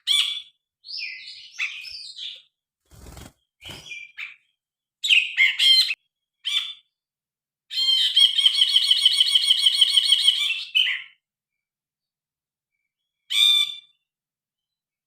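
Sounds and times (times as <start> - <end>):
bird chirping and trilling: 0.0 - 7.0, 7.7 - 11.2, 13.2 - 14.1.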